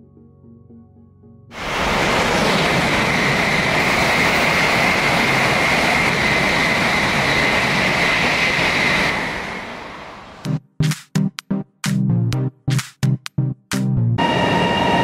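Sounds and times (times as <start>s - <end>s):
high-speed train passing: 1.5s - 10.5s, 14.2s - 15.0s.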